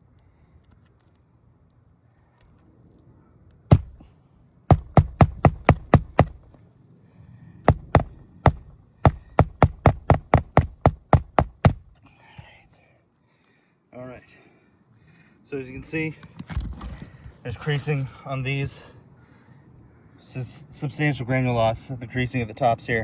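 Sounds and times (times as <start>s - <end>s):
hammer nailing roof shingles: 3.7s - 4.0s, 4.7s - 6.5s, 7.7s - 12.0s.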